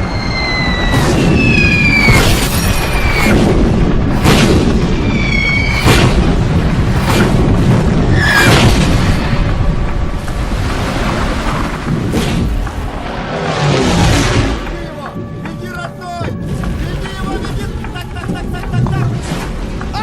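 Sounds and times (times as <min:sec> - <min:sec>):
falling whistling tones: 0:00.0 - 0:07.5, 0:08.1 - 0:08.7
sharp explosion booms: 0:00.0 - 0:14.9
film music: 0:00.0 - 0:20.0
heavy explosion rumble: 0:00.0 - 0:20.0.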